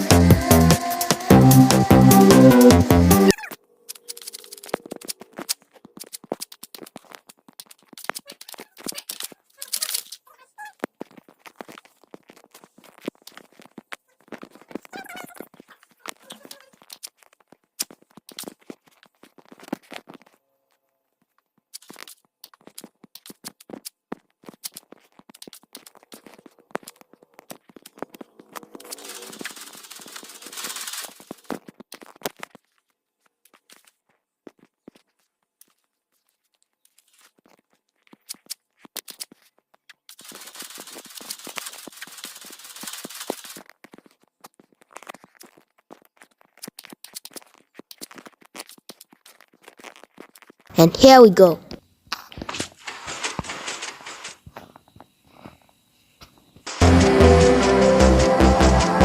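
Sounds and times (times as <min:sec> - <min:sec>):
hands clicking and scraping objects: 0:03.3 - 0:10.2
handling clicks and rustling: 0:03.3 - 0:20.4, 0:52.2 - 0:55.2
scratchy rubbing: 0:27.9 - 0:31.6, 0:52.8 - 0:54.5.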